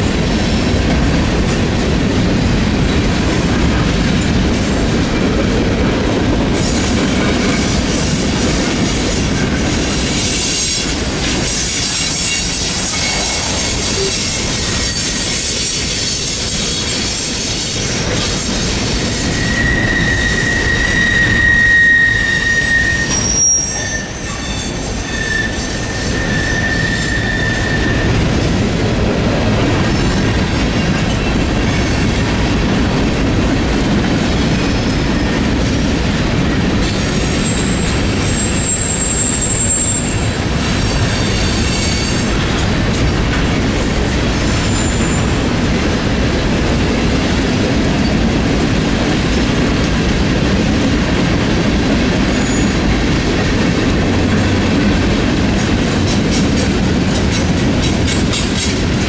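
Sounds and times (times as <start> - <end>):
freight train wheels rumbling on rail: 0.0 - 59.0
high-pitched wheel squeal: 19.2 - 28.1, 37.0 - 42.3.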